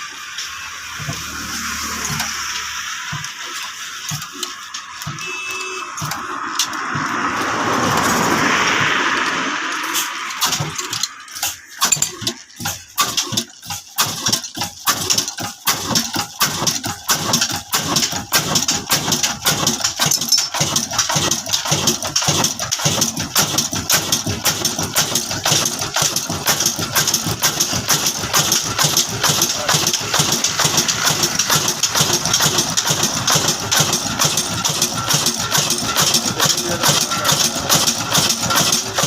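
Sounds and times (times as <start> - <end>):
rushing noise: 0.0 - 13.1, 27.4 - 39.0
diesel engine starting: 0.0 - 39.0.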